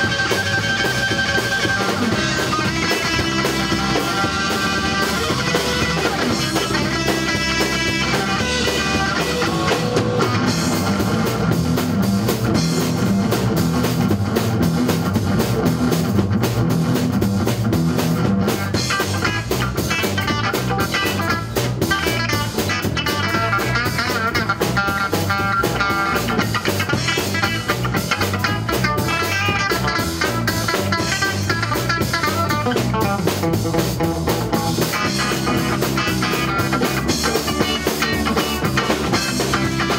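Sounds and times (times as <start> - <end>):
drum kit: 0.0 - 39.9
electric guitar: 0.0 - 39.9.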